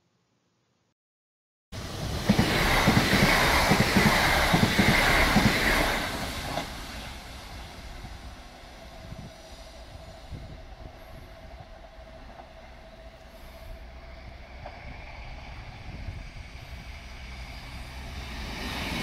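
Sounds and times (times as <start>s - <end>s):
train rumble: 1.8s - 19.0s
train wheels clattering on rails: 1.9s - 7.9s.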